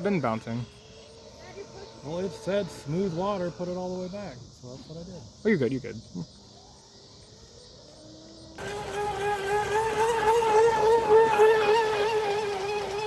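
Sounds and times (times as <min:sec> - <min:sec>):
rc boat motor whining: 0:00.0 - 0:04.4, 0:08.0 - 0:13.0.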